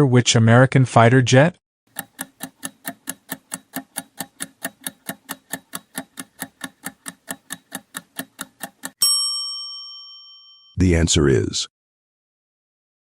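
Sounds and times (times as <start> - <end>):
countdown timer ticking: 1.9 - 9.0.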